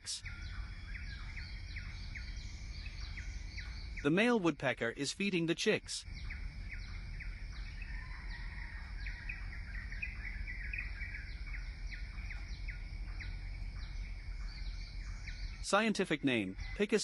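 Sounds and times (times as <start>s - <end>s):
birds chirping: 0.0s - 17.0s
low steady rumble: 5.9s - 15.7s.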